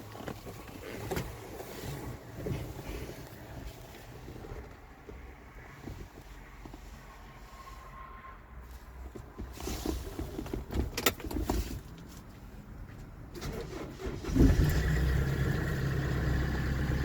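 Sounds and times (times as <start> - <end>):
truck engine starting and idling: 13.3 - 17.0.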